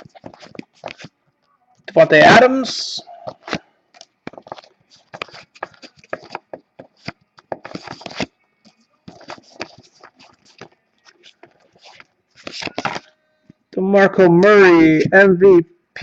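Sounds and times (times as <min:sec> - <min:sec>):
cards sliding rustle: 0:00.0 - 0:01.1, 0:03.3 - 0:13.1.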